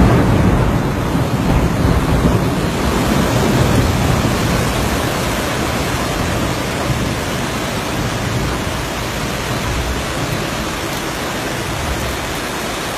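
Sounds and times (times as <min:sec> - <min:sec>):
floodwater roaring: 0:00.0 - 0:12.9.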